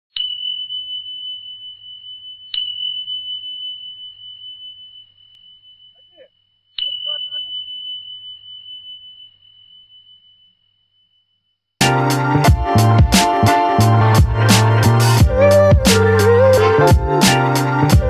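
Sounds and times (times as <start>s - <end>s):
bell-like tone ringing: 0.2s - 11.6s.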